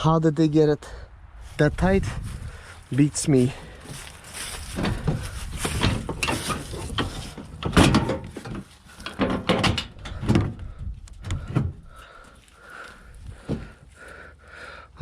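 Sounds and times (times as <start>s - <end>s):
tools and parts clattering: 4.4s - 10.6s.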